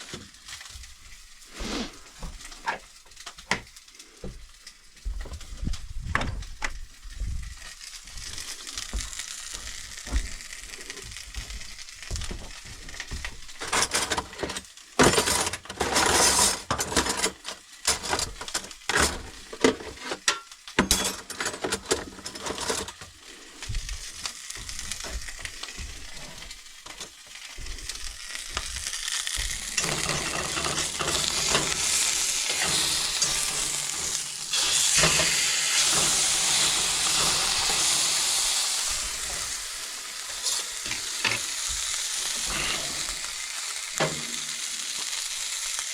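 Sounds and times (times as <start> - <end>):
steady hiss: 0.0 - 13.8, 22.2 - 45.9
steak sizzling in a pan: 0.0 - 45.9
clatter and scraping: 13.6 - 23.2, 29.4 - 38.0.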